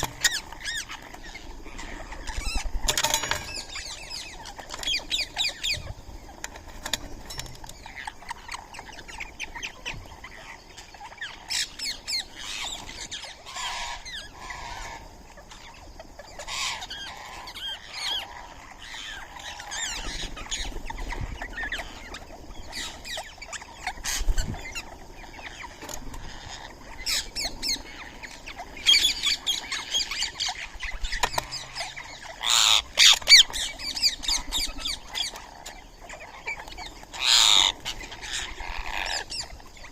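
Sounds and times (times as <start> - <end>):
parakeets squawking: 0.0 - 6.4, 7.7 - 39.9.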